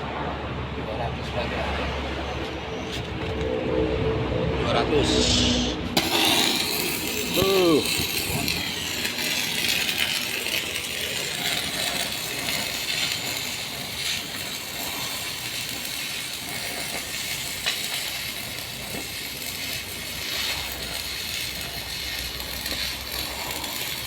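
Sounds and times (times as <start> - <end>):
welding arc crackling and hissing: 5.1 - 24.0.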